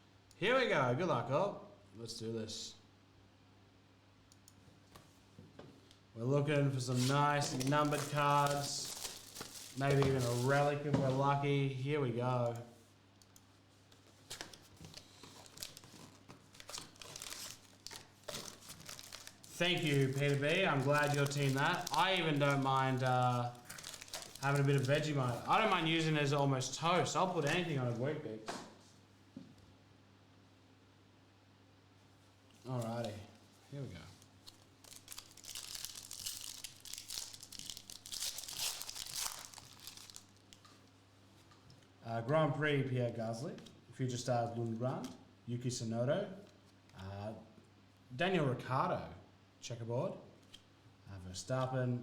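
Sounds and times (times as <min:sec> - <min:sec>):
foil wrapper tearing and crinkling: 0:06.9 - 0:10.7, 0:14.3 - 0:26.1, 0:34.2 - 0:40.6.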